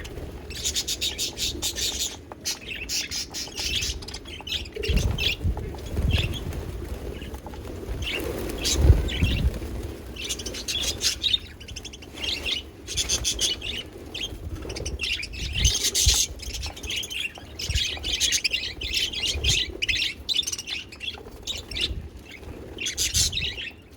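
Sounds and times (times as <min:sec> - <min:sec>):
budgerigars chirping: 0:00.5 - 0:05.4.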